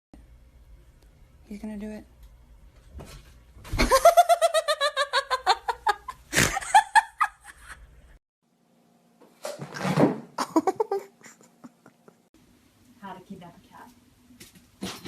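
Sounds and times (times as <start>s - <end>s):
person laughing hard: 3.8s - 7.9s, 10.4s - 12.3s.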